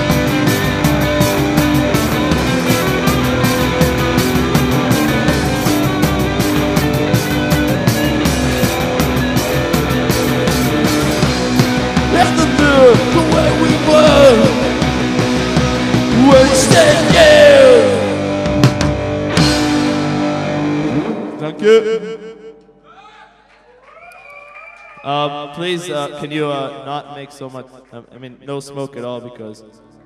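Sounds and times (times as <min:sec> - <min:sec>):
rock band playing: 0:00.0 - 0:21.8.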